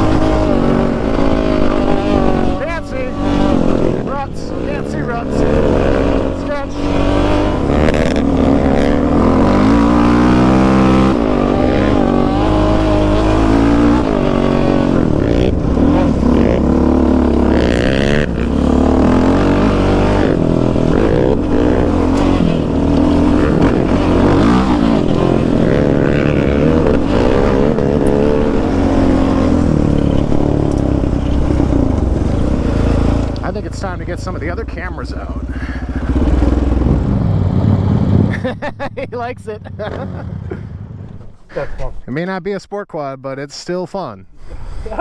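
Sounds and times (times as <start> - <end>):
quad engine revving: 0.0 - 41.6.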